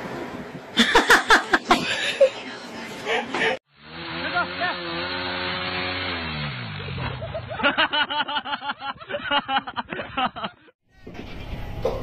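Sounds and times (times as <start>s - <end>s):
motorcycle engine running: 3.7s - 7.7s.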